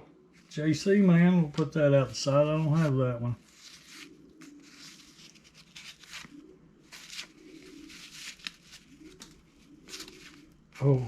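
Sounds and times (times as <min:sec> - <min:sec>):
cardboard cards leafed through: 0:02.6 - 0:11.0.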